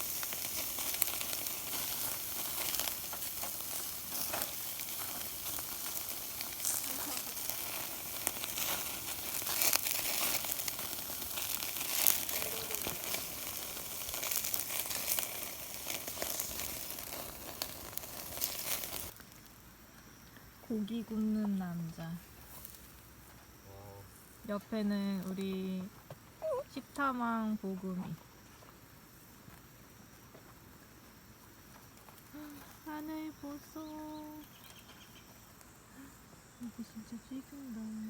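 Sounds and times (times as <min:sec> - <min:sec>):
ribs sizzling on a grill: 0:00.0 - 0:19.3
fire crackling and popping: 0:00.0 - 0:23.3, 0:24.2 - 0:28.1.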